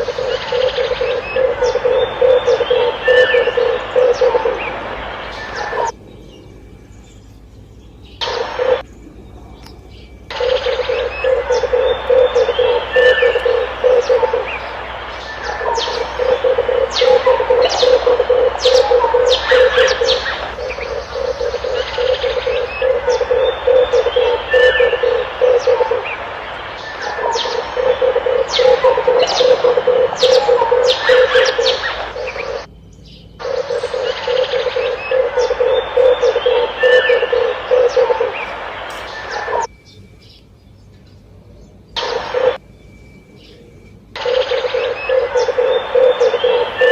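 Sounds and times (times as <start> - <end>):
dove cooing: 0.0 - 6.0, 8.2 - 8.9, 10.3 - 32.7, 33.4 - 39.7, 44.2 - 46.9
small birds chirping: 0.0 - 46.9.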